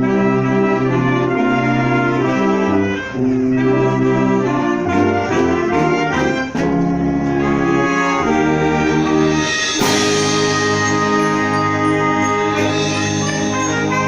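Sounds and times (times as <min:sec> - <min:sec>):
wind band brass chords: 0:00.0 - 0:14.0
percussion strikes: 0:06.3 - 0:14.0
loud percussion crash: 0:08.6 - 0:14.0.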